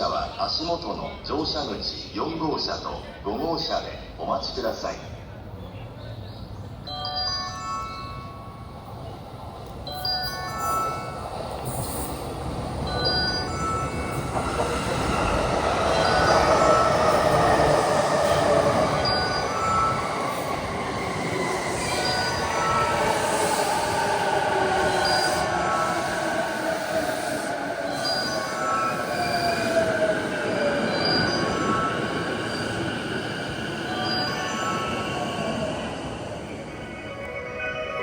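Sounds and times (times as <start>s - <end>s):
electric train running noise: 7.5s - 38.0s.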